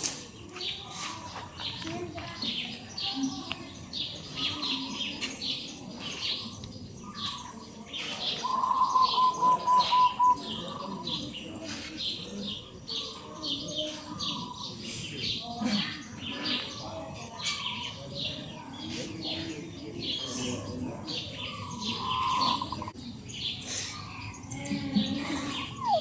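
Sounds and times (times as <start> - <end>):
small birds chirping: 0.0 - 26.0
quick even bird calls: 8.0 - 10.6, 21.5 - 22.9.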